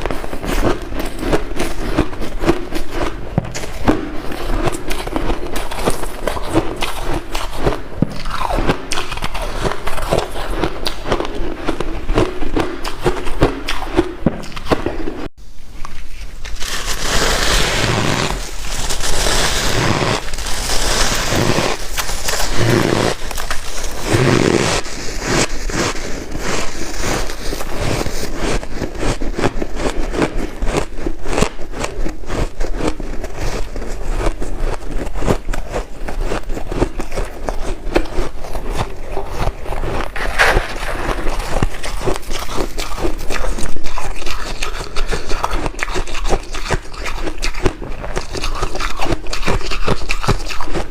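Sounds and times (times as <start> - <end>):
ice being chewed crunching: 0.0 - 14.9, 15.8 - 50.9.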